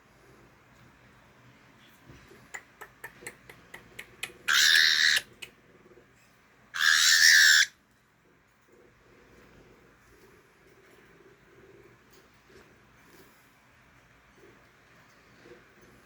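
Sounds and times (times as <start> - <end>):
cockatiel harsh raspy calls: 4.4 - 5.3, 6.8 - 7.8.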